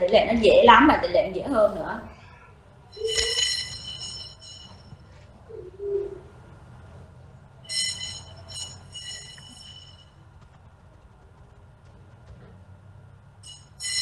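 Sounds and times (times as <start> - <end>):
short high bird calls: 2.2 - 6.4
bird ringing call: 2.9 - 6.4, 7.6 - 10.4, 13.4 - 14.0
short low bird notes: 5.0 - 6.9.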